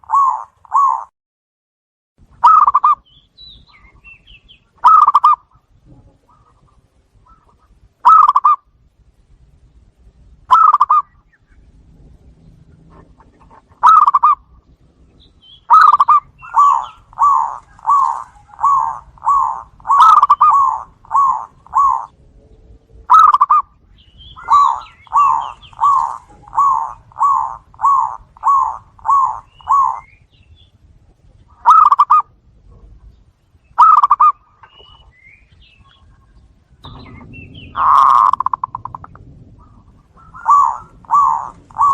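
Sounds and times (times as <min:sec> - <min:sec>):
dove cooing: 0:00.0 - 0:01.1, 0:02.4 - 0:03.0, 0:04.8 - 0:08.6, 0:10.5 - 0:11.2, 0:12.8 - 0:14.5, 0:15.6 - 0:22.2, 0:23.0 - 0:30.2, 0:31.5 - 0:32.8, 0:33.8 - 0:35.0, 0:36.8 - 0:41.9.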